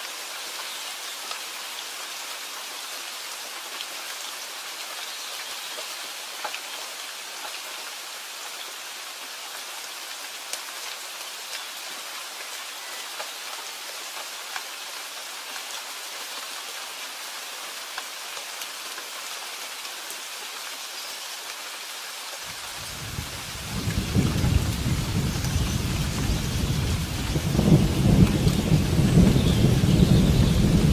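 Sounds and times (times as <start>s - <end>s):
steady rain: 0.0s - 30.9s
thunder rumbling: 22.8s - 30.9s.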